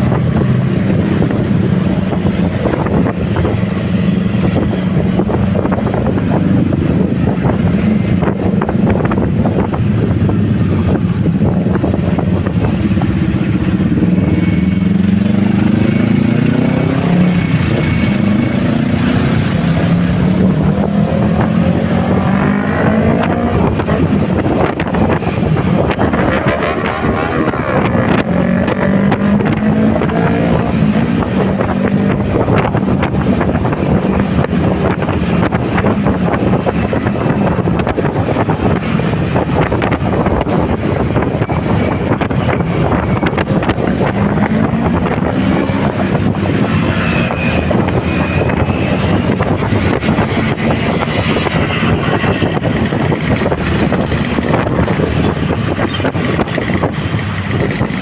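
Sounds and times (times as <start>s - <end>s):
wind noise on microphone: 0.0s - 58.0s
motorcycle engine running: 0.1s - 16.5s, 52.6s - 58.0s.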